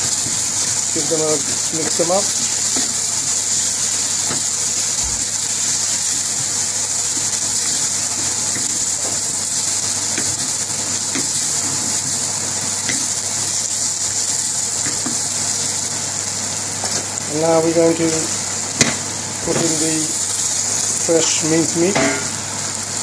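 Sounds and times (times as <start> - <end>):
onions sizzling in oil: 0.0 - 23.0
wooden spatula scraping and tapping: 10.1 - 13.1.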